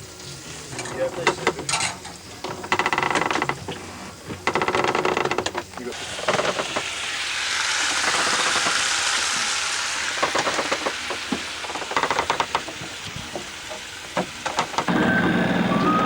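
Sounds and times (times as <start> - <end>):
scattered knocks: 11.8 - 16.0
water rushing past boat hull: 12.6 - 16.0.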